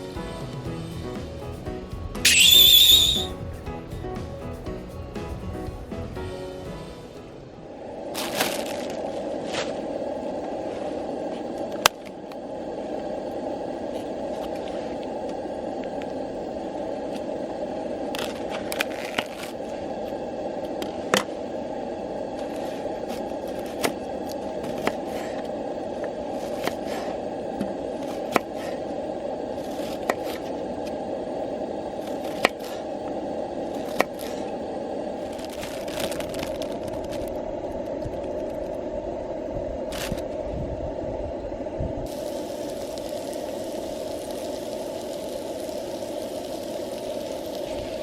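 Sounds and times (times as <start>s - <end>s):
wood fire crackling: 42.0s - 48.0s
rushing hiss: 42.1s - 48.0s.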